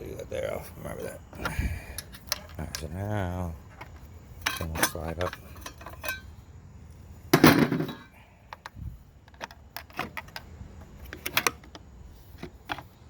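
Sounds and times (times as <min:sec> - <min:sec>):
metal tools clinking: 0:01.4 - 0:03.0, 0:03.7 - 0:06.3, 0:07.4 - 0:08.1.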